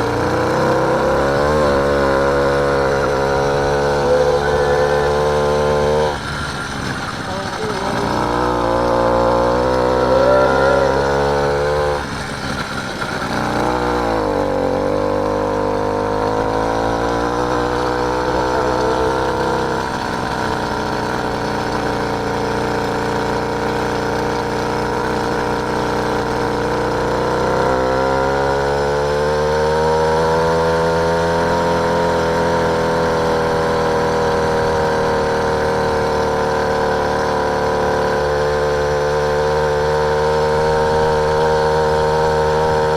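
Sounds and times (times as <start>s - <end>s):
small motorbike engine revving: 0.0s - 42.9s.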